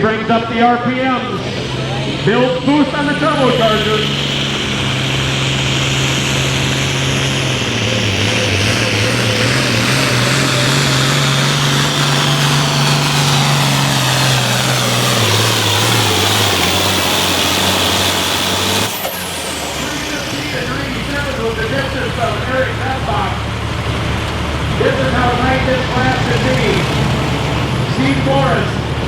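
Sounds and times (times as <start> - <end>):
tractor engine running hard: 0.0 - 29.0
high turbo whistle: 3.4 - 21.0.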